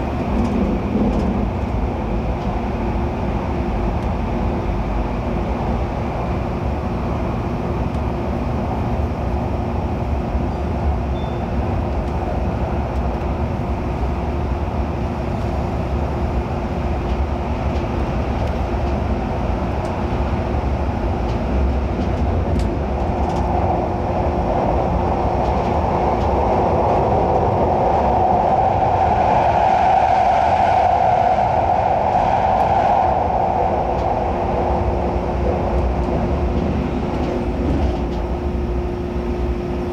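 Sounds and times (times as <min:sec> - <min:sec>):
train running rumble: 0:00.0 - 0:39.9.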